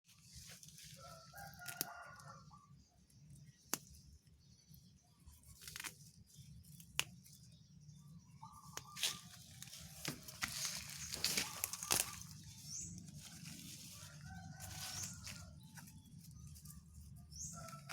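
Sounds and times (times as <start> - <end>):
rooster crowing: 1.0 - 2.7, 13.9 - 15.6.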